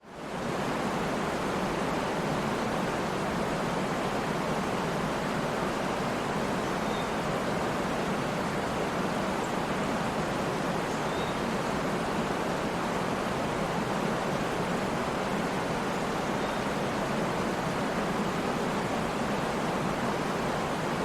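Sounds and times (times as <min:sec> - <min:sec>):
waterfall rushing: 0:00.2 - 0:21.0.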